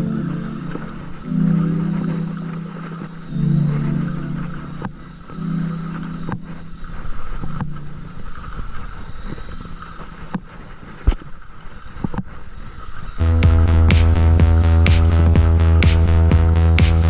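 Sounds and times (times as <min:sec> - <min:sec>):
music: 0:00.0 - 0:10.4, 0:13.2 - 0:17.0
boat engine hum: 0:00.0 - 0:11.1, 0:13.2 - 0:17.0
wind: 0:00.0 - 0:13.2
water noise: 0:00.0 - 0:17.0.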